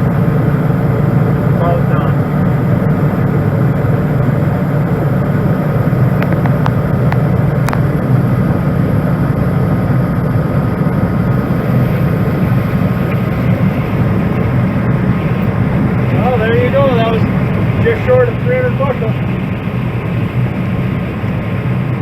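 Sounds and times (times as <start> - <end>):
combine harvester droning: 0.0 - 22.0
faint clicks: 6.2 - 7.8.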